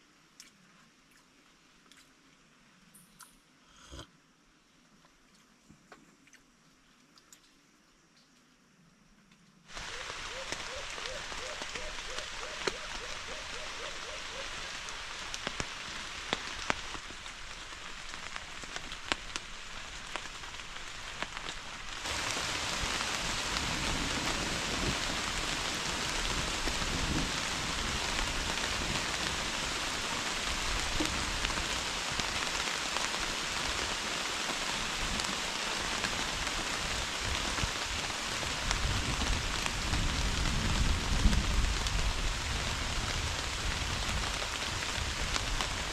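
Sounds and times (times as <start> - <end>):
rain falling: 9.7 - 45.9.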